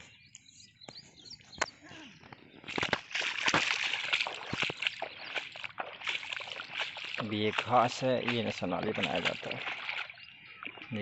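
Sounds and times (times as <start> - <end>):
water splashing and gurgling: 2.5 - 11.0.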